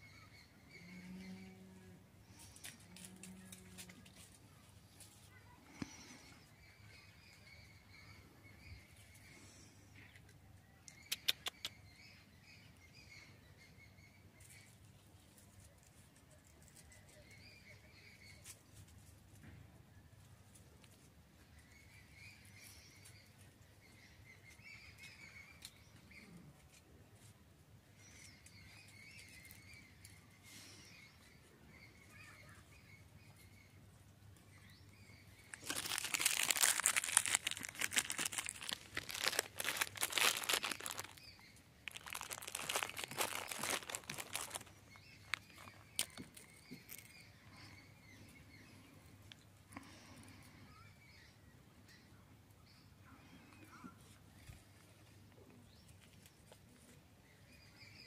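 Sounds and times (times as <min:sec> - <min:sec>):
faint bird chirps: 0:27.9 - 0:58.0
plastic food wrapper crinkling: 0:35.4 - 0:47.1.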